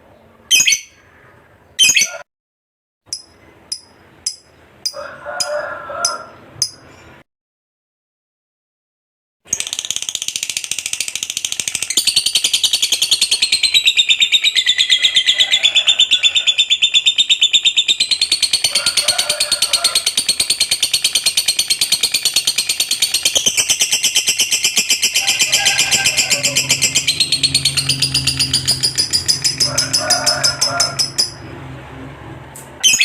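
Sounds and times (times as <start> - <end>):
lovebird chattering trill: 0.5 - 1.0, 1.8 - 2.2, 9.6 - 31.4.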